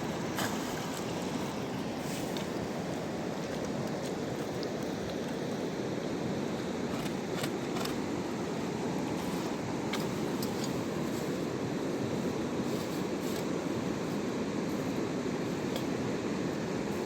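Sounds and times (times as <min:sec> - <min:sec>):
river water rushing: 0:00.0 - 0:04.7.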